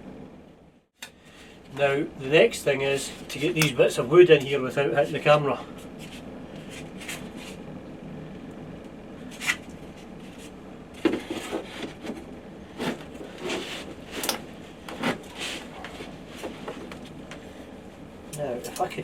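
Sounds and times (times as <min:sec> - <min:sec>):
wooden boards scraping: 0:09.4 - 0:17.1.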